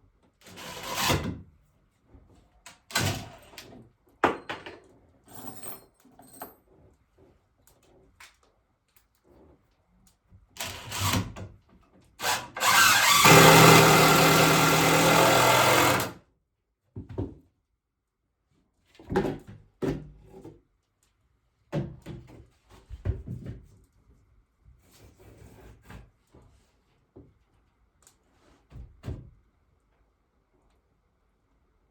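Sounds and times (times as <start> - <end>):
power drill whine: 10.6 - 11.2, 12.2 - 16.2
wood and tools knocking: 12.6 - 16.1.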